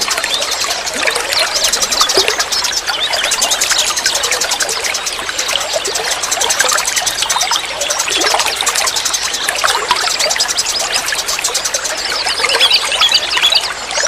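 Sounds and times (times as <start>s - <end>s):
birds chirping: 0.0s - 14.0s
stream trickling: 0.0s - 14.0s.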